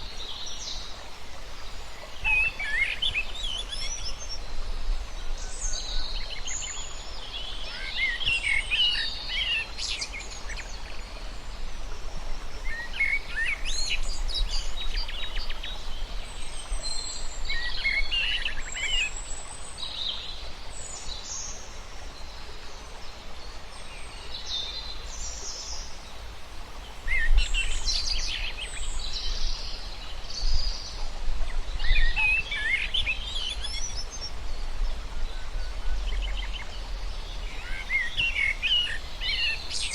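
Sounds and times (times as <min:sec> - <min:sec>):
birds singing and chirping: 0:27.0 - 0:39.9.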